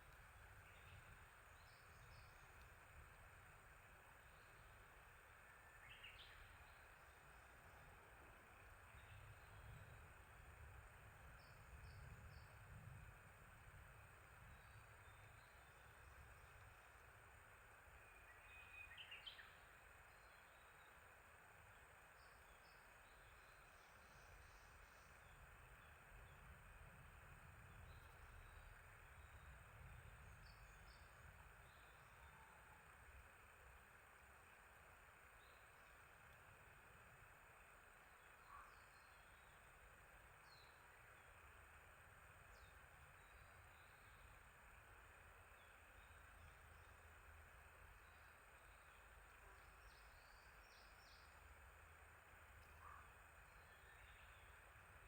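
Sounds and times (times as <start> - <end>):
songbird chirping: 0.0 - 7.9, 14.3 - 36.6, 37.4 - 55.0
outdoor ambience hiss: 0.0 - 55.0.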